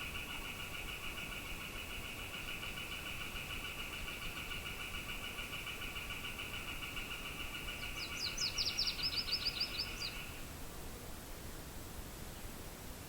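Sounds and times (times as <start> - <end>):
songbird singing sharp notes: 0.0 - 10.4.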